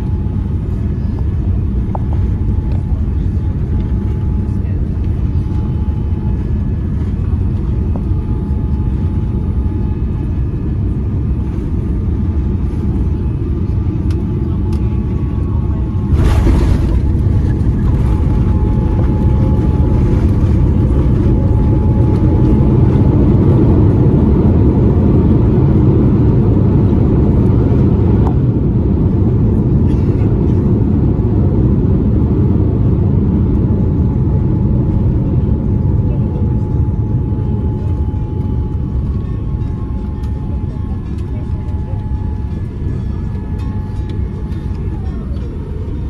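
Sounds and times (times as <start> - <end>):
airliner cabin rumble: 0.0 - 46.0
aircraft touchdown jolt: 16.1 - 19.1.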